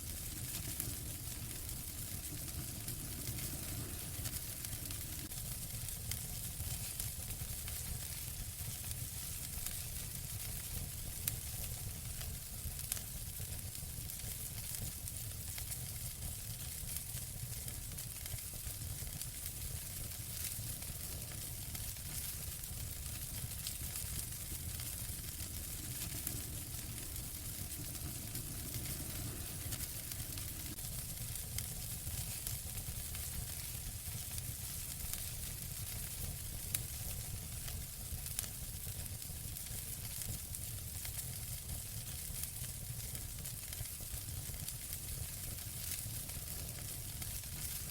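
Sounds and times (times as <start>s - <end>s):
wood fire crackling: 0.0s - 47.9s
fire pops: 0.1s - 7.1s, 19.1s - 33.7s
low rumble: 0.4s - 5.3s, 22.9s - 30.8s.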